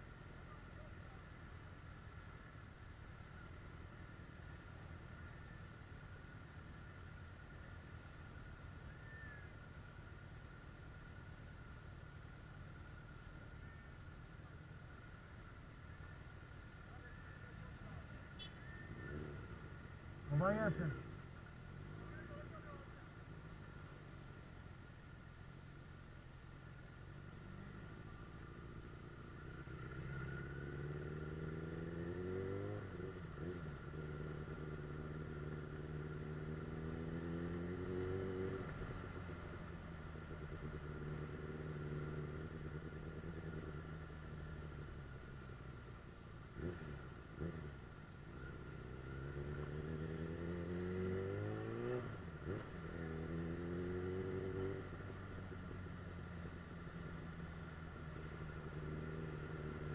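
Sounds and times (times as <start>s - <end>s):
motorcycle engine accelerating: 16.8s - 24.0s, 27.2s - 59.9s.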